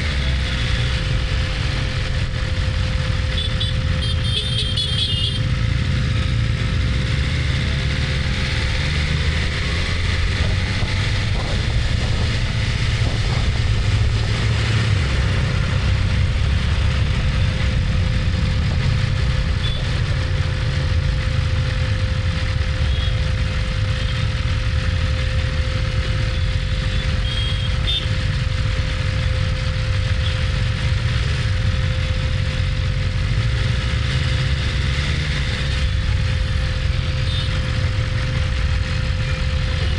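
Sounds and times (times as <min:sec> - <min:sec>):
faint road traffic: 0:00.0 - 0:39.9
motorcycle engine idling: 0:10.0 - 0:21.0, 0:35.9 - 0:39.9.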